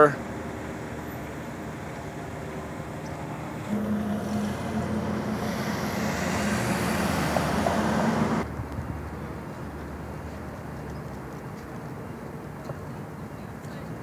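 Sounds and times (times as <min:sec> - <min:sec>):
street traffic: 0:00.0 - 0:14.0
vehicle engine running close: 0:00.1 - 0:08.5.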